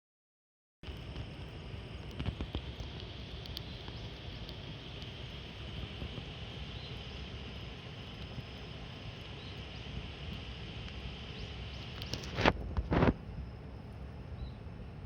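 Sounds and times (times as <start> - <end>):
campfire crackling: 0.8 - 15.0
fire hissing: 0.8 - 15.0.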